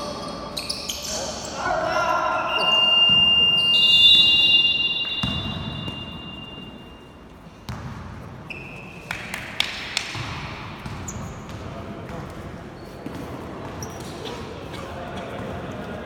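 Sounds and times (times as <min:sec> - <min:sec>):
short high tone: 0:02.0 - 0:07.0
high steady tone: 0:02.1 - 0:07.2
basketball bouncing: 0:05.0 - 0:06.8, 0:07.7 - 0:08.2, 0:09.6 - 0:12.3.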